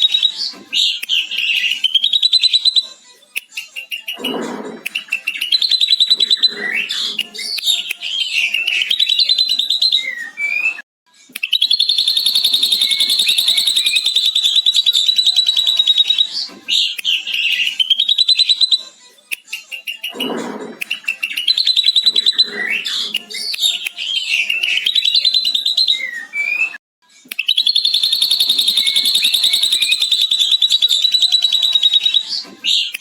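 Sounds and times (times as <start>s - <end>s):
bird chirps and whistles: 0.0s - 2.9s, 3.8s - 10.8s, 11.4s - 18.9s, 19.7s - 26.8s, 27.4s - 33.0s
bird rapid trill: 11.5s - 16.3s, 27.5s - 33.0s.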